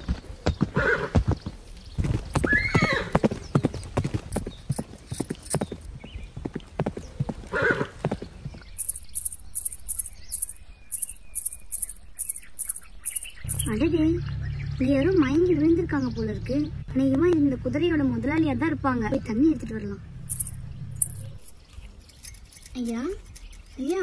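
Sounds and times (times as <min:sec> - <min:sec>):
horse hooves clip-clopping: 0:00.0 - 0:10.2
horse whinny: 0:07.5 - 0:07.9
high chirps: 0:08.7 - 0:14.0, 0:20.2 - 0:24.0.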